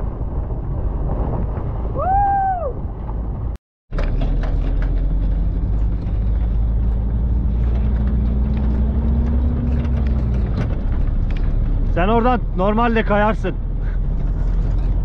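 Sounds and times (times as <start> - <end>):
steady rushing noise: 0.0 - 15.0
car engine running: 3.9 - 15.0.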